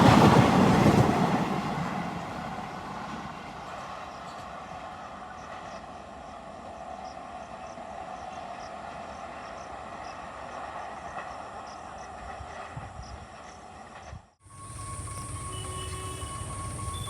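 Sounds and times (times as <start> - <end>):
train rushing past: 0.0 - 17.0.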